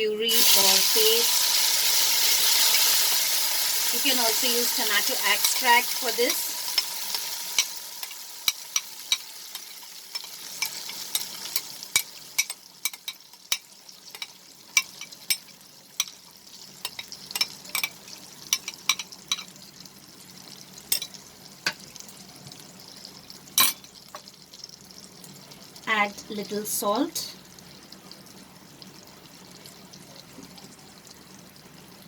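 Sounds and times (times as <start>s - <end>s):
oil sizzling: 0.0s - 32.0s.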